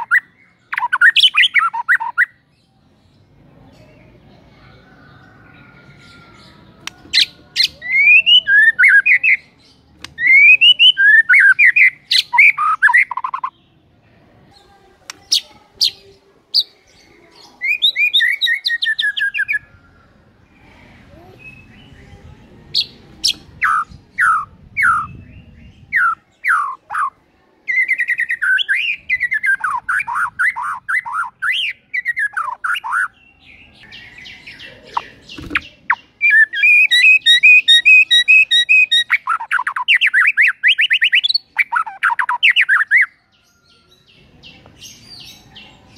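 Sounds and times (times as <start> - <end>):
bird singing whistles: 7.8 - 9.4, 10.2 - 13.4, 36.2 - 42.9.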